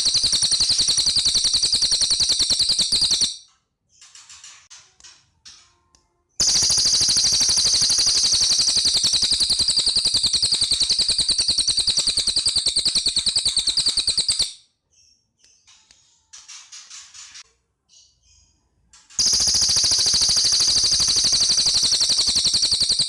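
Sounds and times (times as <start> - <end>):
songbird rattling trill: 0.0 - 3.4, 6.4 - 14.6, 19.2 - 23.0.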